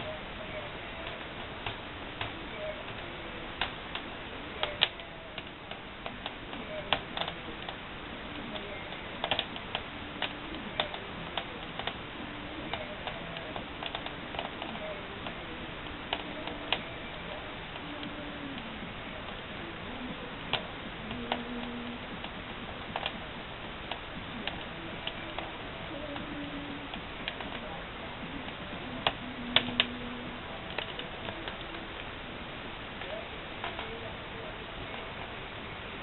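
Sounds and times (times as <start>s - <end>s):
wood fire crackling: 0.0s - 36.0s.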